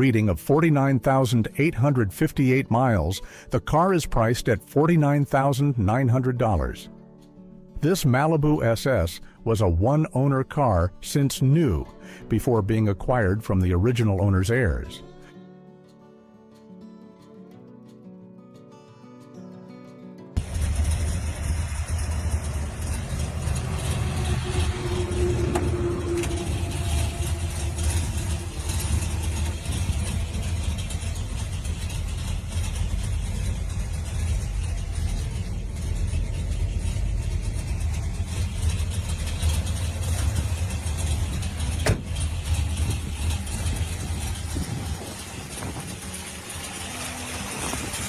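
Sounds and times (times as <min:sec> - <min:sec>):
car engine idling: 0:20.4 - 0:48.0.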